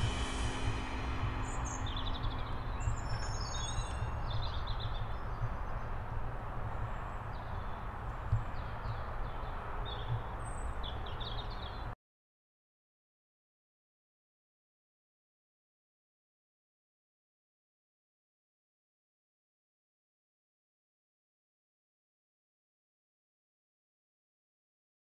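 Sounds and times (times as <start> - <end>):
sustained music tones: 0.0 - 5.2
low outdoor rumble: 0.0 - 10.7
birds chirping: 0.0 - 11.9.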